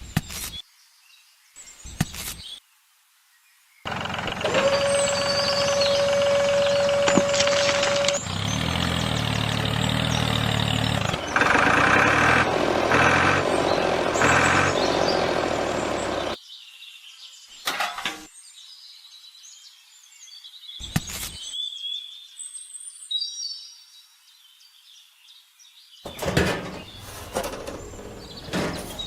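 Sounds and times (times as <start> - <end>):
engine surges: 3.9 - 16.4, 26.1 - 29.0
vehicle engine running: 3.9 - 16.4, 26.1 - 29.0.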